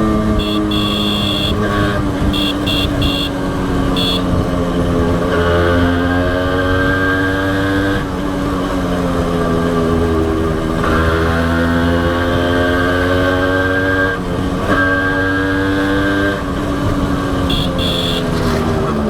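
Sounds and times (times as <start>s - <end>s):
motorcycle engine running: 0.0s - 19.0s
short high-pitched beeps: 2.4s - 3.4s.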